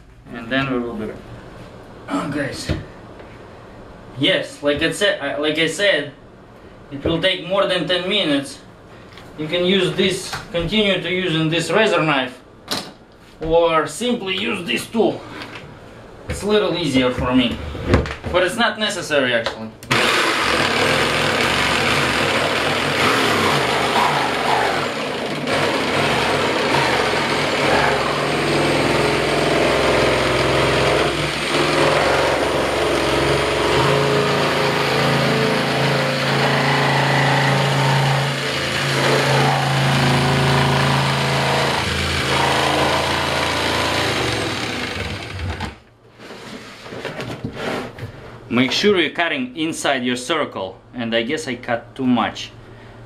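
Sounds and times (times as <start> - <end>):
power tool cutting plastic: 19.9 - 45.8.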